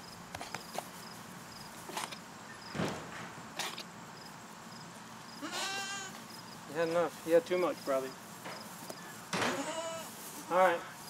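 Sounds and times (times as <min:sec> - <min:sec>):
crickets chirping: 0:00.0 - 0:11.0
farm animal bleating: 0:05.4 - 0:06.2, 0:09.4 - 0:11.0
soft rustles: 0:06.8 - 0:11.0.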